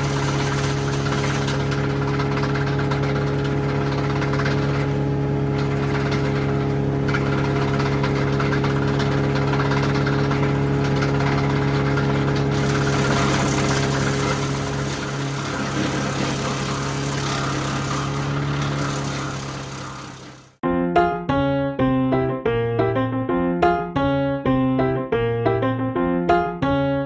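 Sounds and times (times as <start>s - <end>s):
tractor engine running: 0.0s - 20.6s
wood chipper hissing: 0.0s - 20.6s.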